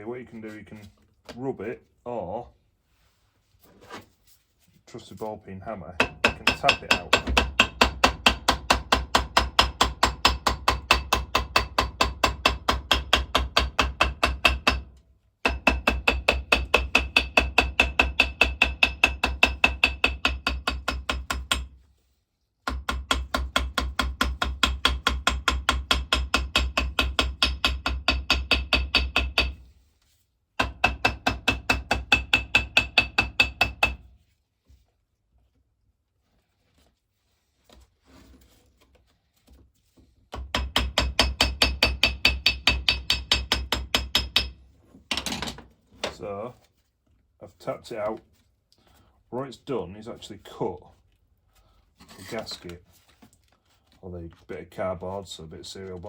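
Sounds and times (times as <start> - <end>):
hammer tapping on cardboard: 22.6 - 29.6, 30.6 - 34.0.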